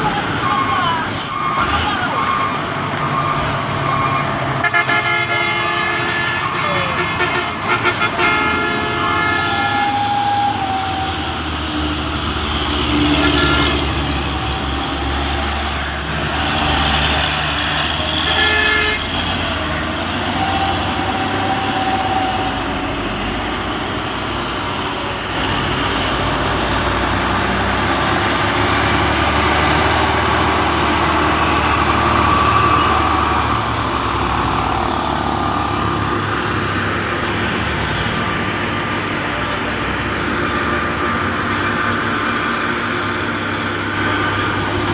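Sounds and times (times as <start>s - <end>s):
truck engine running: 0.0s - 44.9s
horn tooting: 0.4s - 16.9s, 18.0s - 23.5s.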